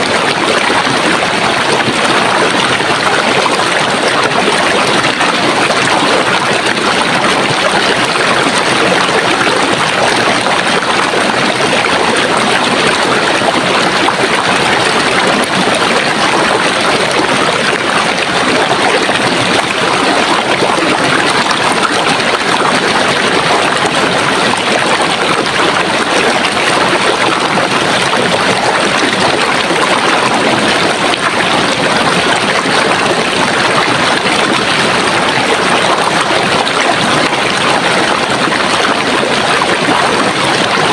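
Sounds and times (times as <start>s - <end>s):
stream flowing: 0.0s - 40.9s.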